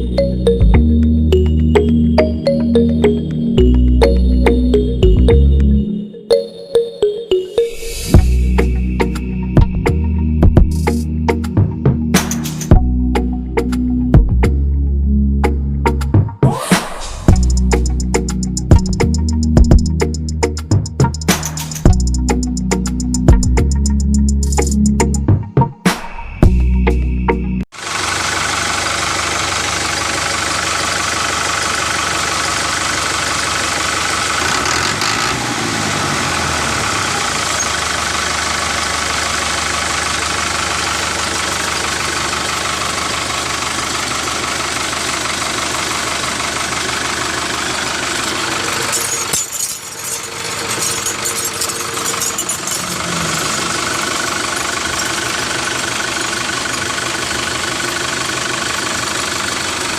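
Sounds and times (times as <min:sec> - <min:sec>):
motor running steadily: 0:50.8 - 0:59.9.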